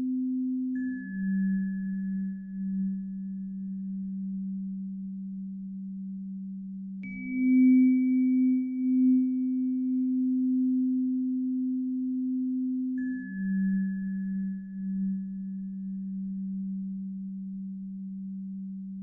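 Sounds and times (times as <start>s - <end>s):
soft bell-like ping: 0.0s - 3.3s, 7.0s - 16.4s.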